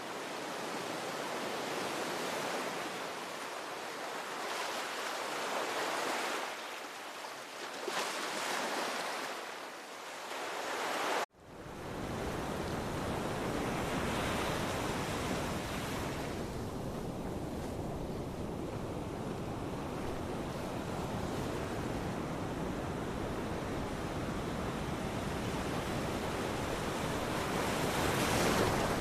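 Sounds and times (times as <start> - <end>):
ocean surf washing in: 10.5 - 29.0
wind on microphone: 11.6 - 29.0.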